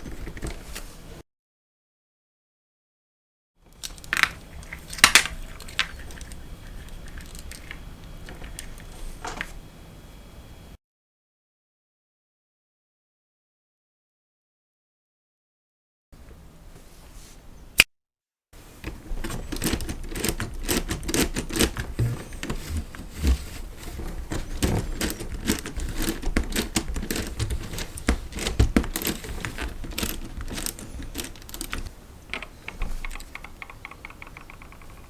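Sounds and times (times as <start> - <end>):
plastic parts clicking and rattling: 0.0 - 0.8, 3.7 - 9.6, 18.8 - 35.0.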